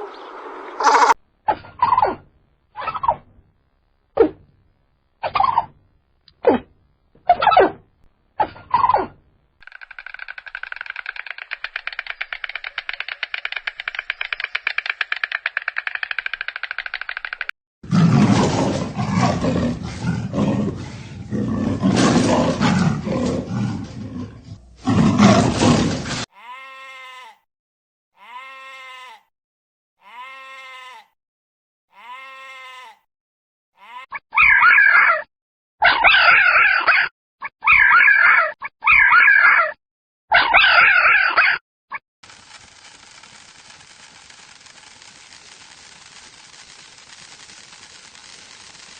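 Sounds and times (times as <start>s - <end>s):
farm animals calling: 0.0s - 1.2s, 28.2s - 29.2s, 32.0s - 33.0s.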